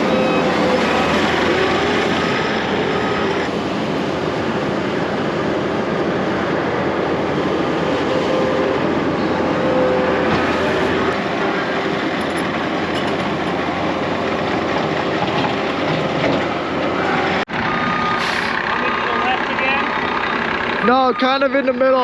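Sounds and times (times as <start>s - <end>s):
diesel engine running: 0.0s - 22.0s
rattling and clatter: 12.0s - 16.9s.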